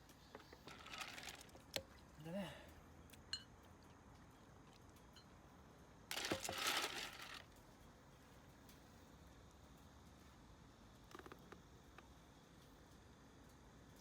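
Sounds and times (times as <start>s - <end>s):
crinkling rustle: 0.4s - 1.8s, 6.1s - 7.7s.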